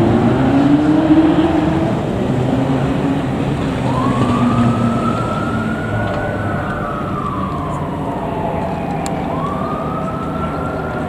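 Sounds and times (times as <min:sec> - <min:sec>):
fire engine siren wailing: 0:00.0 - 0:11.0
truck engine rumbling: 0:00.0 - 0:11.0.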